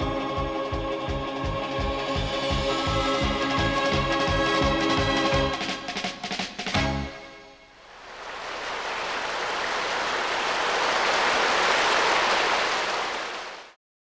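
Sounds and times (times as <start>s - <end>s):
audience applauding: 7.9s - 13.8s.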